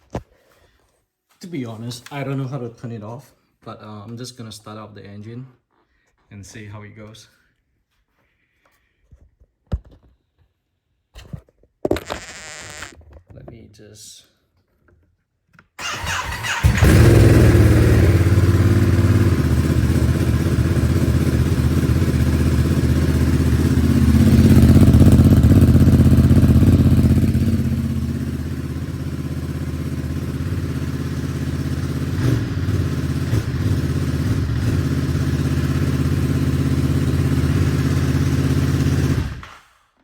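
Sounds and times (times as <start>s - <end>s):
motorcycle engine idling: 15.8s - 39.4s.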